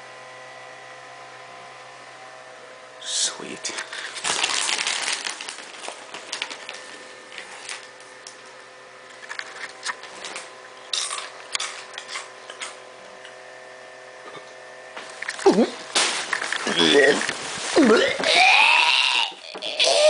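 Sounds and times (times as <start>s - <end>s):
faint steady hum: 0.0s - 20.0s
crunching tortilla chips: 3.7s - 8.4s, 9.1s - 12.8s, 15.0s - 20.0s.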